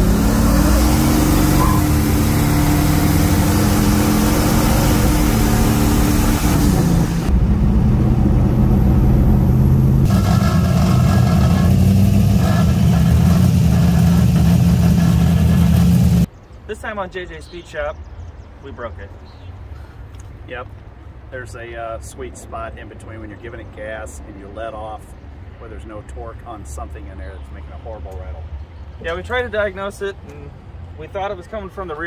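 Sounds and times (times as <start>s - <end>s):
car engine accelerating: 0.0s - 16.3s.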